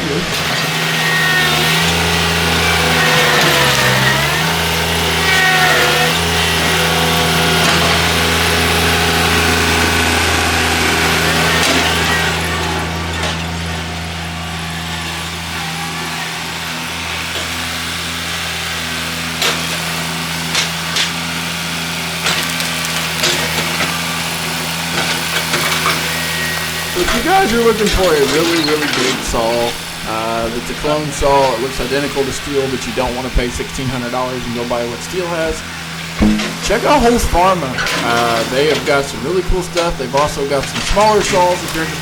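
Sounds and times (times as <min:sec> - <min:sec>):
engine idling: 0:00.0 - 0:42.0
sharp knocks: 0:36.1 - 0:37.0.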